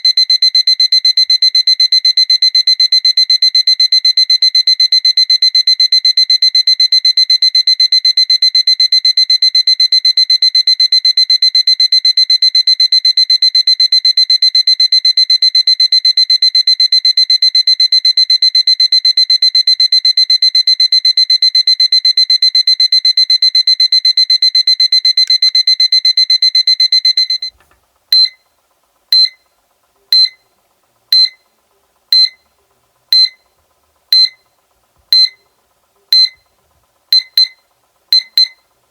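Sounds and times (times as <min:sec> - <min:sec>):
short single beeps: 0:29.2 - 0:29.4, 0:30.2 - 0:30.4, 0:31.2 - 0:31.4, 0:32.2 - 0:32.4, 0:33.2 - 0:33.4, 0:34.2 - 0:34.4, 0:35.2 - 0:35.4, 0:36.2 - 0:36.4, 0:37.2 - 0:37.6, 0:38.2 - 0:38.6
alarm clock pulsing tone: 0:34.1 - 0:34.4, 0:35.2 - 0:35.4, 0:36.1 - 0:36.4.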